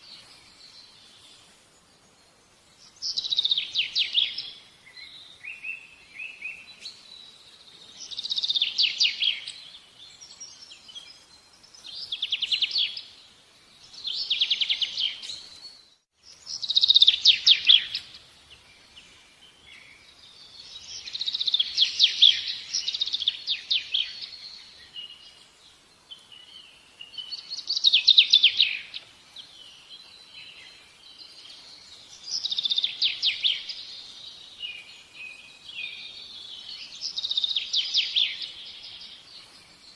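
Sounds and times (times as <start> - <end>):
bird chirps: 0.0 - 39.9
songbird trilling: 16.3 - 18.2, 32.1 - 39.3.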